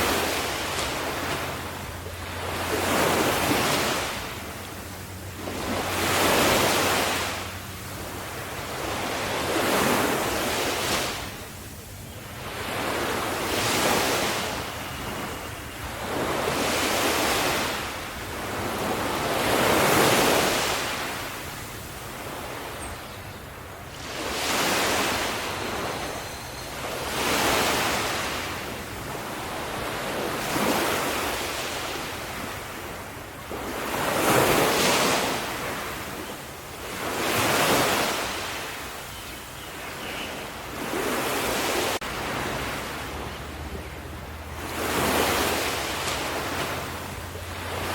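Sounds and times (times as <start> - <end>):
sea waves washing onto shore: 0.0 - 47.9.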